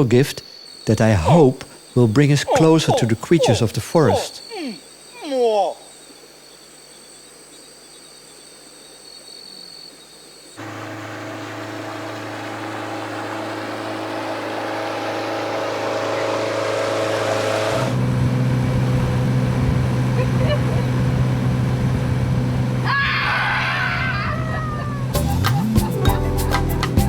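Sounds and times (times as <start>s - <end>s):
insects trilling: 0.0s - 10.7s
boat motor running: 10.6s - 27.0s
deep engine hum: 10.6s - 27.0s.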